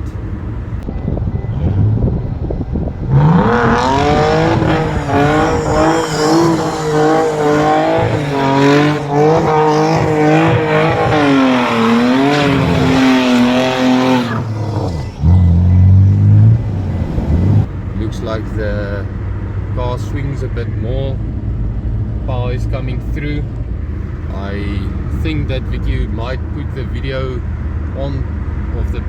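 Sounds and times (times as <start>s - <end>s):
tyres spinning and squealing: 1.1s - 17.7s
car engine revving hard: 1.4s - 17.7s.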